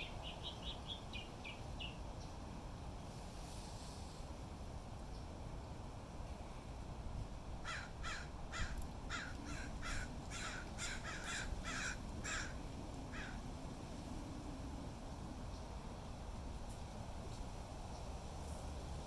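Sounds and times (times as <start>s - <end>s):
low wind rumble: 4.5s - 19.0s.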